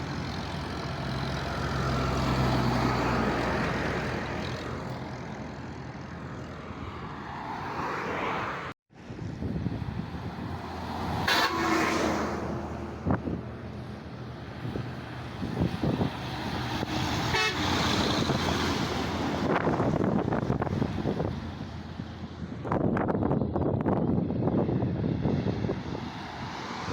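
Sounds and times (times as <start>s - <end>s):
truck engines running: 0.0s - 7.8s, 9.0s - 26.9s
vehicle horn tooting: 17.3s - 17.8s.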